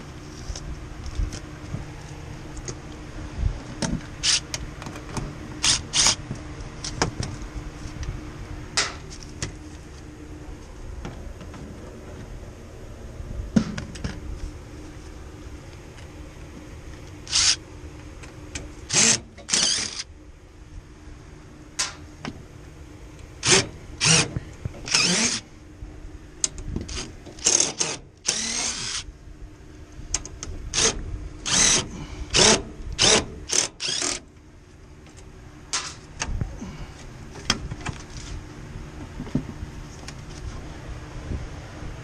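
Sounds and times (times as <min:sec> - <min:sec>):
faint steady hum: 0:00.0 - 0:42.0
cordless drill bursts: 0:17.3 - 0:17.6, 0:18.9 - 0:20.0, 0:23.4 - 0:24.3, 0:24.9 - 0:25.4, 0:27.4 - 0:29.0, 0:30.8 - 0:34.2.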